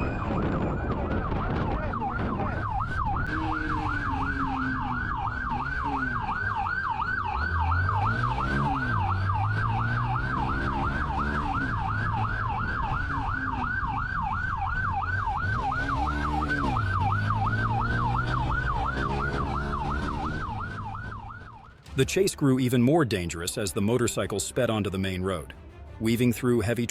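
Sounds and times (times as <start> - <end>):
police siren yelping: 0.0 - 21.8
vehicle engine revving: 1.5 - 21.9.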